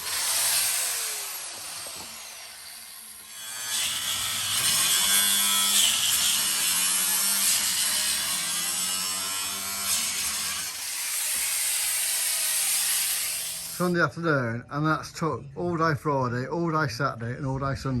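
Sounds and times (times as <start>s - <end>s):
power tool cutting metal: 0.0s - 13.8s.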